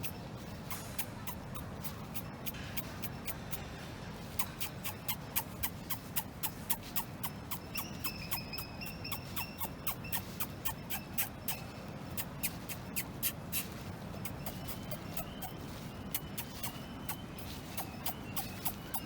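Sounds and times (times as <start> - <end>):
bird clicking calls: 4.3 - 19.0.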